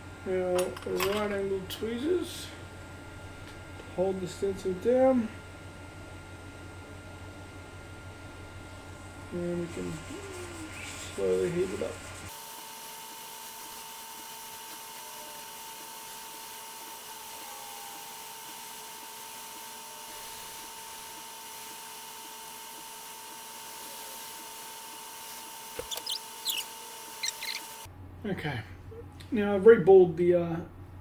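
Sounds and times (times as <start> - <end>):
hot air blower hissing: 8.2 - 17.2.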